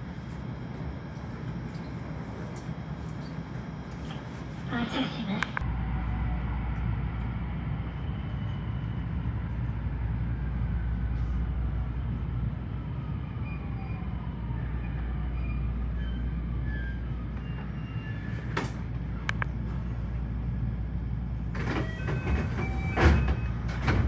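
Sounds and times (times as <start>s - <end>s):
electric train rumble: 0.0s - 24.0s.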